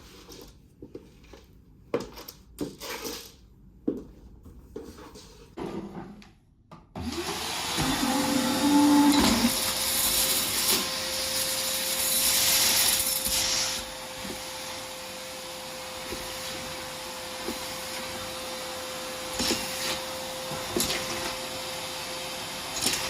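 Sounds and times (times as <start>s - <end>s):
vacuum cleaner motor whine: 7.0s - 23.0s.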